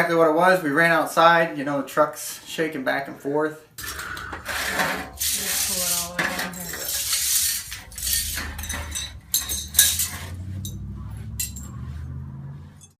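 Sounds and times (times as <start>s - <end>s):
low steady rumble: 3.8s - 12.9s
glassware and dishes clinking: 5.4s - 11.9s.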